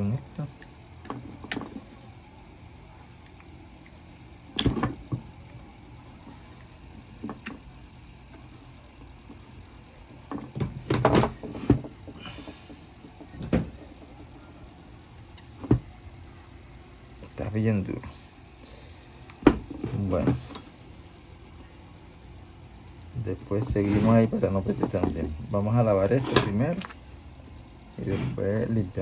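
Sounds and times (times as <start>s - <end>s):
metal part scraping: 26.1s - 26.9s.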